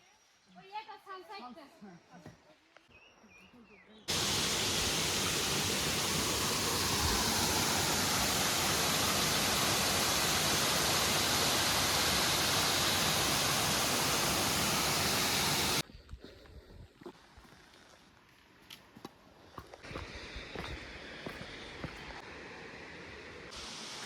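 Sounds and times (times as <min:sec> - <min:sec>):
waterfall rushing: 0:04.1 - 0:15.8.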